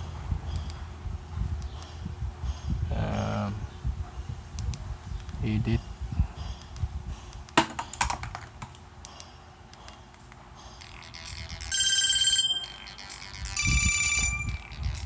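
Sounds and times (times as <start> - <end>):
phone ringtone melody: 10.8 - 15.0.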